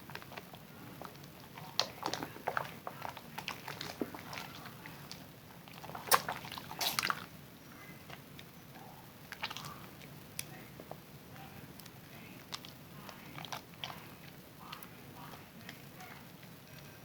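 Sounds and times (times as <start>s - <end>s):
soap lathering crackles: 0.0s - 17.0s.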